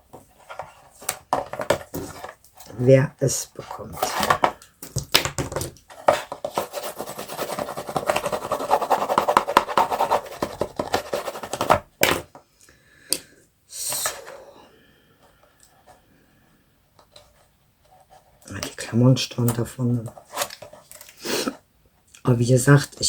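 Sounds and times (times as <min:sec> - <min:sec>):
paper scratching and rubbing: 0:06.1 - 0:11.8.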